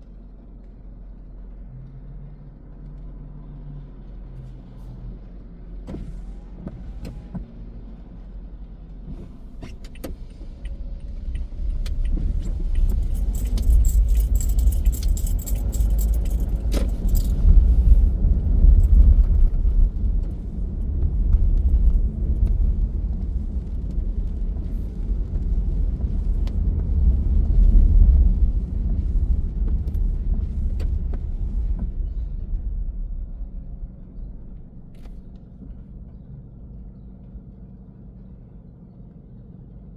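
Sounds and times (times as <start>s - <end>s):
car road rumble: 0.0s - 39.9s
quick light clicks and jingles: 11.9s - 18.0s.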